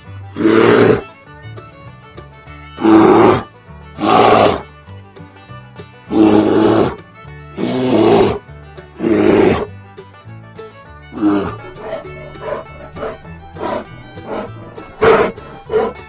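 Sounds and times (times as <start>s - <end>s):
background music: 0.3s - 16.0s
large animal roaring: 0.4s - 1.0s, 2.8s - 3.4s, 4.0s - 4.6s, 6.1s - 7.0s, 7.6s - 8.4s, 9.0s - 9.7s, 11.2s - 16.0s.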